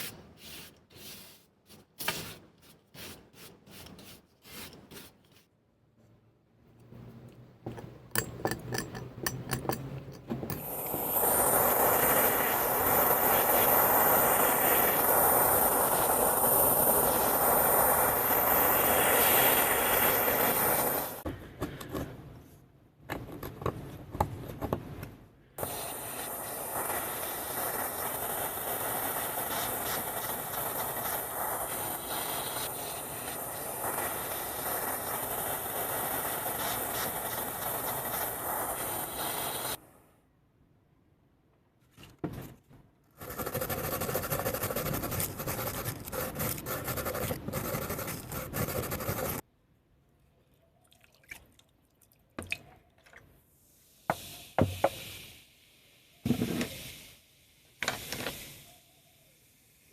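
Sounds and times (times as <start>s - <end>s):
machine rushing hiss: 10.6s - 21.2s, 25.6s - 39.8s, 53.8s - 58.8s.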